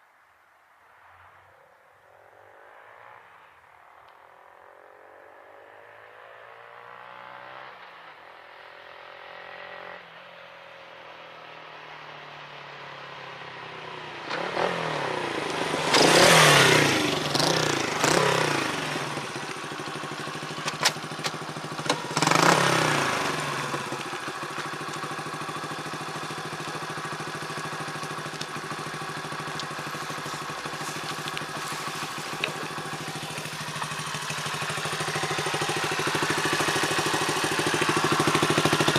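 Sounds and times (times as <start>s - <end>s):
motorcycle engine accelerating: 13.6s - 38.9s.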